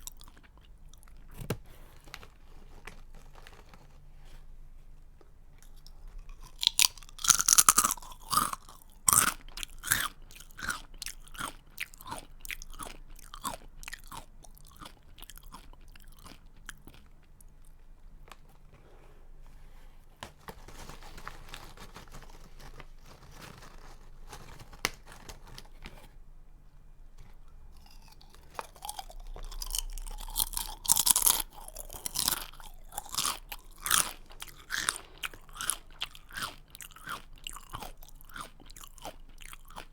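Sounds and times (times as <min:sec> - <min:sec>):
person crunching a snack: 0:00.0 - 0:01.3, 0:05.6 - 0:17.8, 0:27.7 - 0:39.9.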